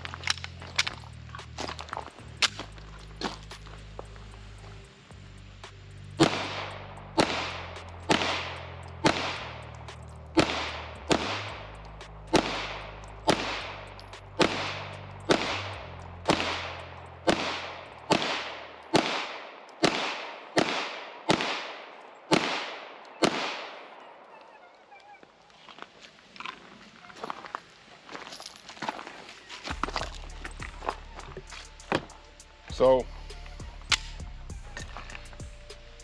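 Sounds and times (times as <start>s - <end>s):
faint background music with bass: 0.0s - 19.2s, 29.7s - 36.0s
pistol shots with echo: 6.2s - 9.6s, 10.4s - 11.7s, 12.3s - 15.7s, 16.3s - 24.0s.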